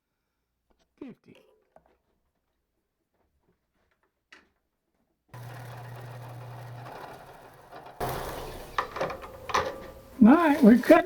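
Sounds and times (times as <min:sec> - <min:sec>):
lathe motor humming: 0:05.4 - 0:11.0.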